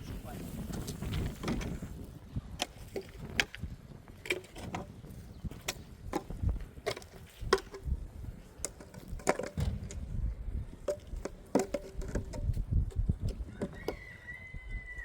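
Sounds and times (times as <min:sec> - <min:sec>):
sharp knocks and cracks: 0:08.6 - 0:13.0
low thuds: 0:09.5 - 0:11.2.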